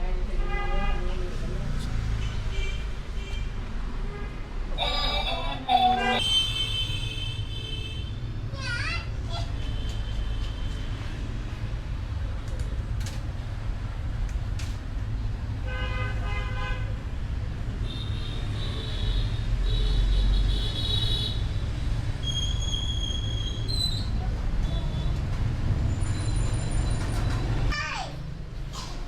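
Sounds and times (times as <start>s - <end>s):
road traffic rumble: 0.1s - 29.0s
high-pitched horn tooting: 4.8s - 6.6s.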